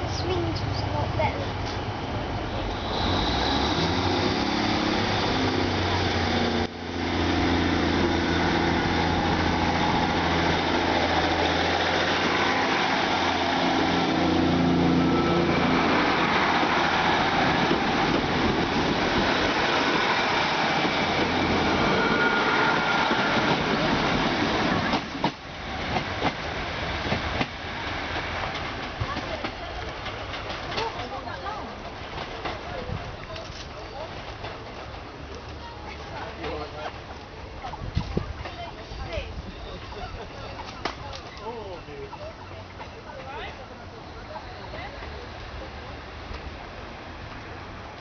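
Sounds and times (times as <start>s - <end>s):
train engine droning: 0.0s - 31.1s
train rushing along track: 0.0s - 48.0s.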